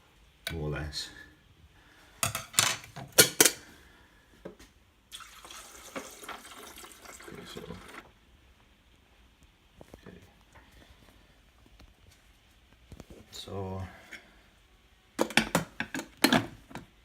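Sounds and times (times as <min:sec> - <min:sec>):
water pouring: 0:05.1 - 0:08.1.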